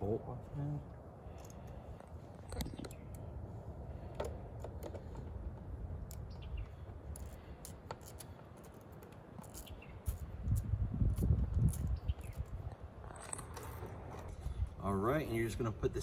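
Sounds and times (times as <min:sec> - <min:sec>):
parts being handled: 0:01.3 - 0:03.3, 0:03.9 - 0:14.6.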